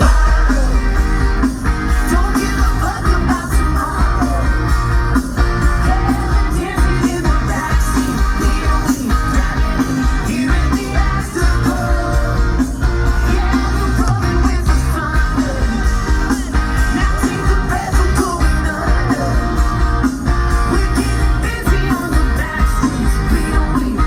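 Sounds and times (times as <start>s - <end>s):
person singing: 0.0s - 1.2s, 20.6s - 24.0s
live rock band playing: 0.0s - 24.0s.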